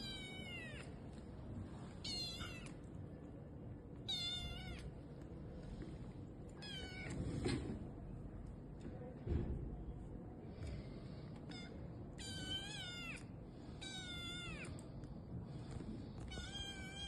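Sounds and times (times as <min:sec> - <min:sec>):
kitten meowing: 0:00.0 - 0:00.9, 0:02.0 - 0:02.8, 0:04.1 - 0:04.9, 0:06.6 - 0:07.2, 0:11.5 - 0:13.2, 0:13.8 - 0:14.8, 0:16.3 - 0:17.0.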